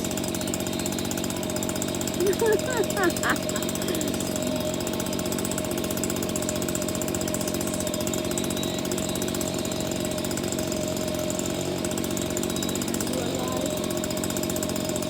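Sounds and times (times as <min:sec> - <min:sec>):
small motor buzzing: 0:00.0 - 0:15.0.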